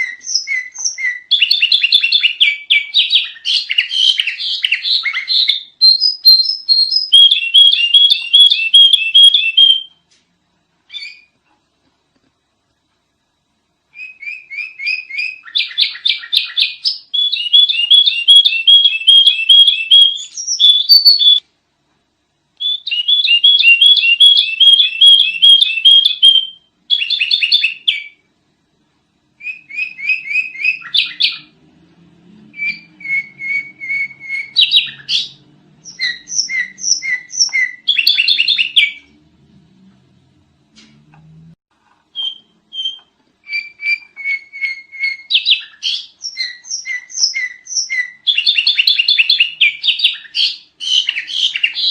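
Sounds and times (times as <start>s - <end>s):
bird chirping rapidly: 0.0s - 9.9s, 14.0s - 21.4s, 22.6s - 28.2s, 29.4s - 31.6s, 32.5s - 39.1s, 42.2s - 51.9s
faint low hum: 0.0s - 48.5s.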